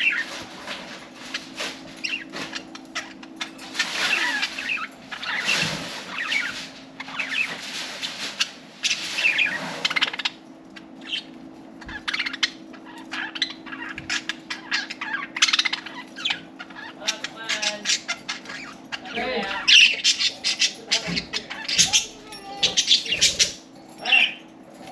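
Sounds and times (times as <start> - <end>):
budgerigars chattering: 8.4 - 24.4.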